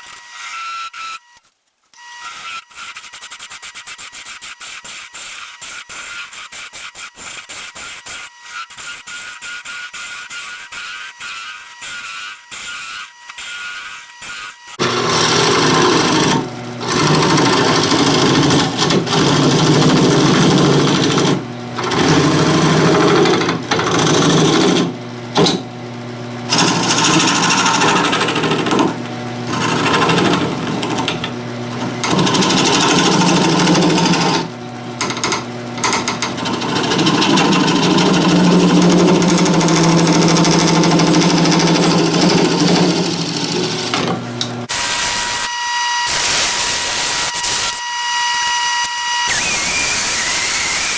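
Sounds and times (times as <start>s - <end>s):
tool scraping spinning wood: 14.8s - 25.8s, 26.4s - 50.9s
wood lathe motor hum: 14.8s - 50.9s.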